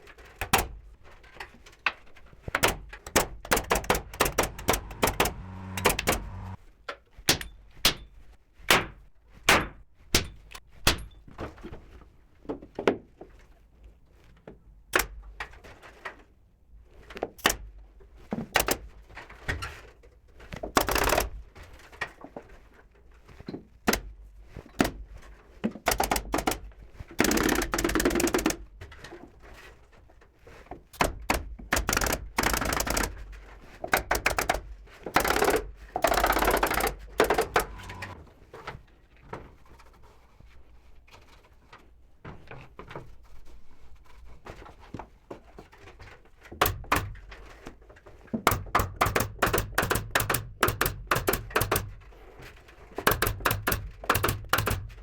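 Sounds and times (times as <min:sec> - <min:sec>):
sharp knocks and clicks on wood: 0:02.5 - 0:06.6, 0:07.3 - 0:08.1, 0:08.7 - 0:11.2, 0:25.9 - 0:28.6, 0:31.0 - 0:33.2, 0:33.8 - 0:37.8, 0:46.6 - 0:47.4, 0:48.4 - 0:52.2, 0:53.0 - 0:55.0
rattling work on wood: 0:02.6 - 0:06.6, 0:25.9 - 0:28.6, 0:31.2 - 0:38.2, 0:46.6 - 0:47.7, 0:48.3 - 0:55.0.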